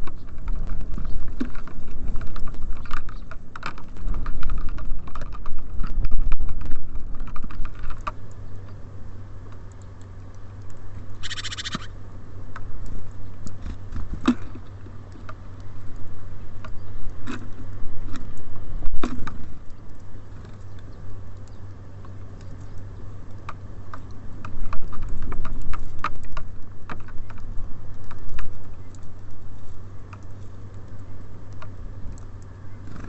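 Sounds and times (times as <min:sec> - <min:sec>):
birds pecking on feeder: 0:00.0 - 0:33.0
low steady hum: 0:00.0 - 0:33.0
short bird call: 0:11.2 - 0:11.9.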